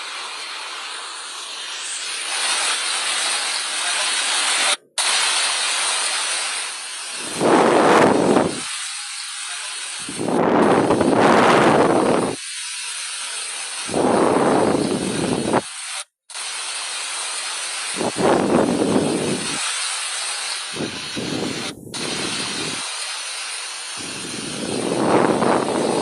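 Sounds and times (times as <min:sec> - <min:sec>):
water hiss: 0:00.0 - 0:26.0
wind buffeting microphone: 0:07.2 - 0:08.7, 0:10.1 - 0:12.4, 0:13.9 - 0:15.6, 0:18.0 - 0:19.6, 0:20.8 - 0:22.8, 0:24.0 - 0:26.0.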